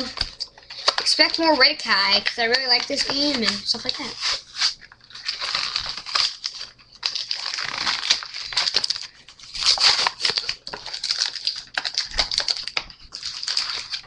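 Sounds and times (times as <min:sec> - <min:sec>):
wrapper crinkling: 0:00.0 - 0:14.0.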